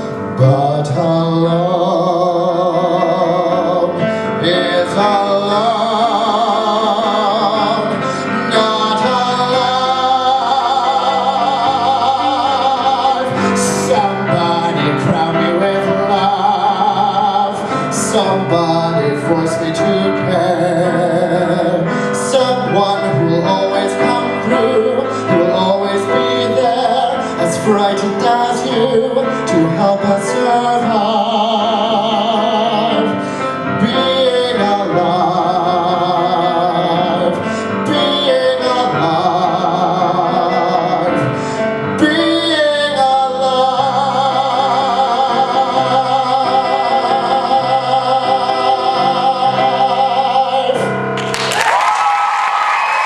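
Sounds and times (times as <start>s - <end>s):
man singing a show tune: 0.0s - 51.2s
applause: 51.2s - 53.0s.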